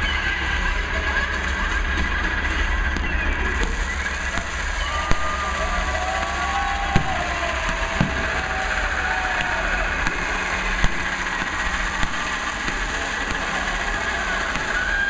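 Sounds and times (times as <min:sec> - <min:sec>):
steady rumble: 0:00.0 - 0:15.0
fireworks bangs: 0:01.5 - 0:15.0
whistling rising shells: 0:02.4 - 0:15.0.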